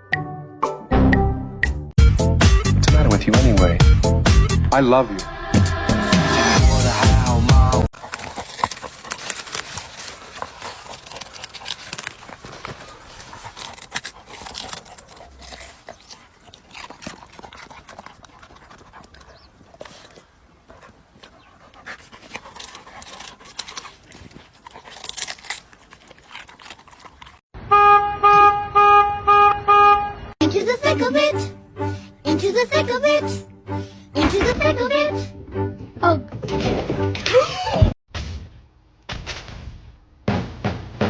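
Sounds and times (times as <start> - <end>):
dog panting: 7.8 - 27.4.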